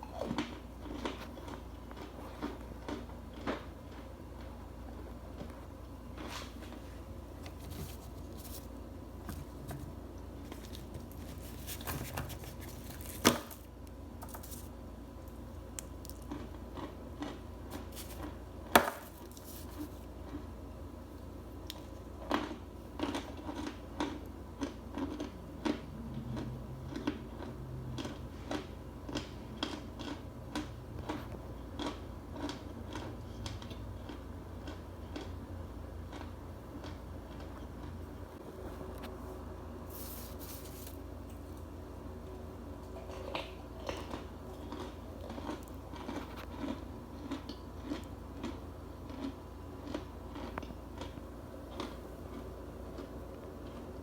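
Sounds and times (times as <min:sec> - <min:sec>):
crisp chewing crunches: 0:00.2 - 0:04.5, 0:15.8 - 0:18.4, 0:21.7 - 0:35.4, 0:43.2 - 0:54.0.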